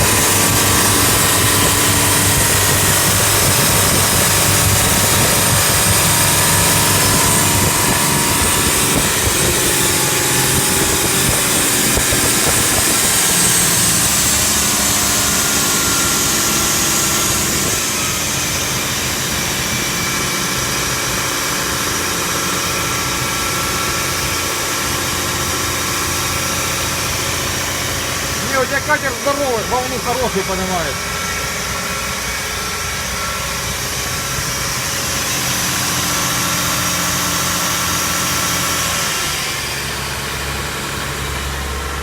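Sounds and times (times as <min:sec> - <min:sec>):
boat diesel engine running: 0:00.0 - 0:42.0.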